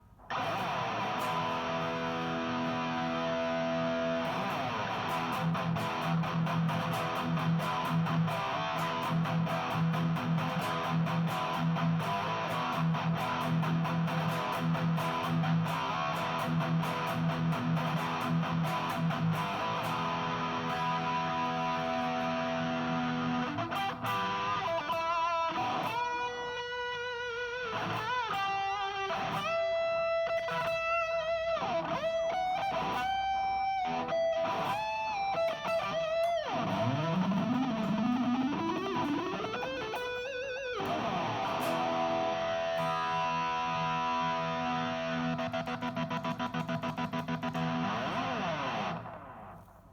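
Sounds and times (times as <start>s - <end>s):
distorted electric guitar: 0.0s - 49.9s.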